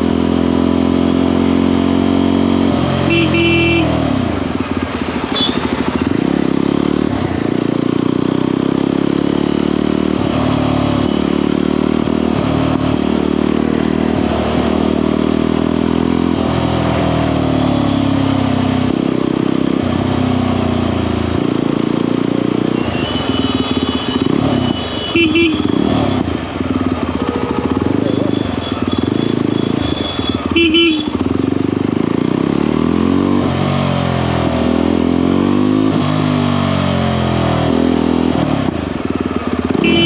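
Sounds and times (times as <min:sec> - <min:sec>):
motorcycle engine accelerating: 0:00.0 - 0:40.0
vehicle horn: 0:03.0 - 0:04.2, 0:05.3 - 0:05.8, 0:22.8 - 0:26.3, 0:27.2 - 0:31.3, 0:39.7 - 0:40.0.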